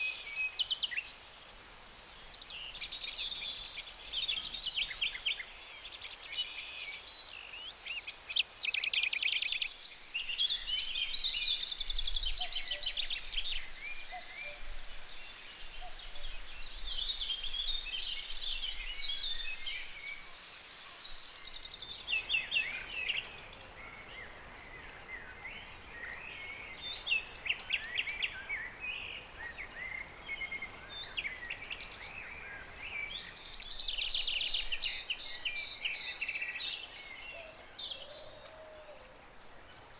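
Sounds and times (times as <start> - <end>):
steady outdoor hiss: 0.0 - 39.9
songbirds chirping and trilling: 21.0 - 39.9.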